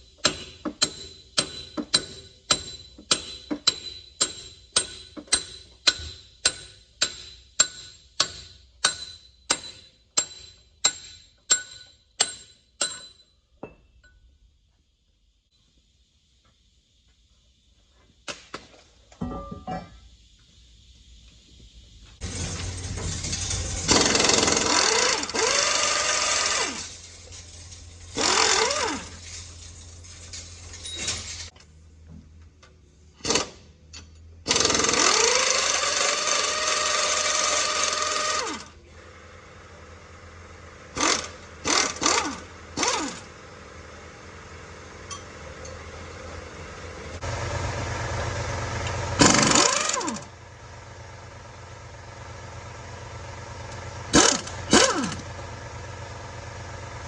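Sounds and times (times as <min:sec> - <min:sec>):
air impact wrench whining: 0:22.2 - 0:31.5, 0:34.4 - 0:38.9, 0:40.4 - 0:50.6, 0:53.0 - 0:56.7.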